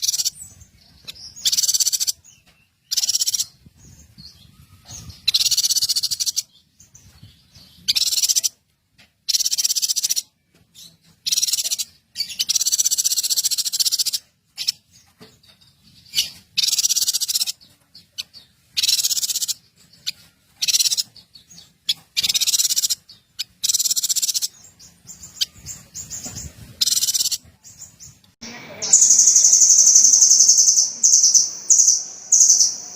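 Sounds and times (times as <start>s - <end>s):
songbird singing rapid trill: 16.2s - 32.9s.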